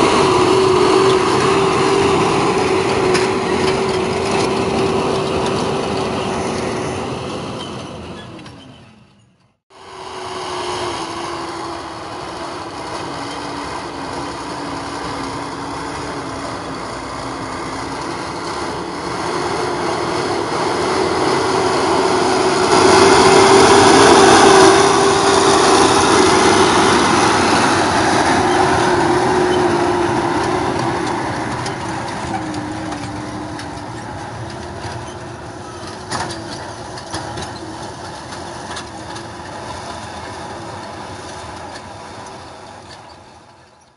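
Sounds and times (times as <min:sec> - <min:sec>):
diesel engine running: 0:00.0 - 0:09.1, 0:09.7 - 0:43.9.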